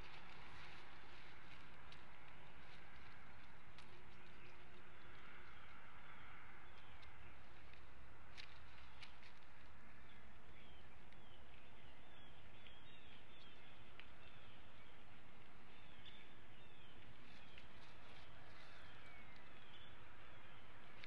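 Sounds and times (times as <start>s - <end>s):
faint clicks: 13.4s - 14.4s.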